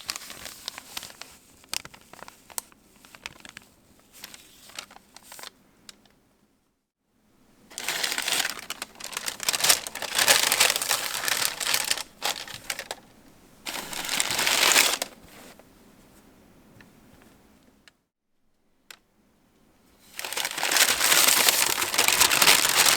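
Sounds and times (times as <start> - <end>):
packaging paper crinkling: 0.0 - 6.0, 7.7 - 13.1, 13.7 - 15.6, 20.0 - 22.9.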